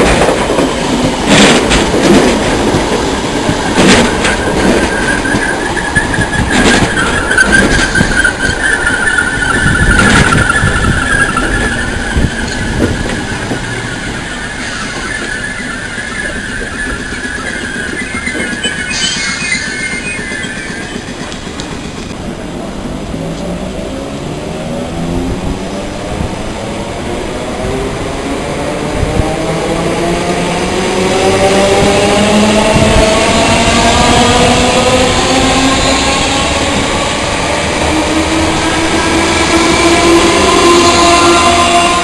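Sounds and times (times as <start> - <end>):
train rumble: 0.0 - 42.0
train wheels squealing: 3.2 - 22.2.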